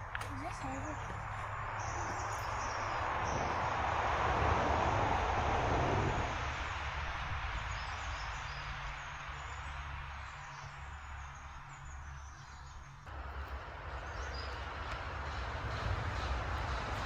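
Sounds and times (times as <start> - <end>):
small birds chirping: 0.0 - 3.8, 7.5 - 17.0
low outdoor rumble: 0.0 - 12.3, 13.1 - 17.0.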